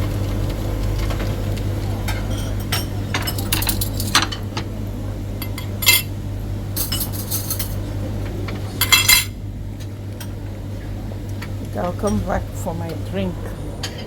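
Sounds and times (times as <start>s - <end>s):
metal utensils clinking on dishes: 2.1s - 4.4s, 5.4s - 6.1s, 6.8s - 7.8s, 8.8s - 9.4s.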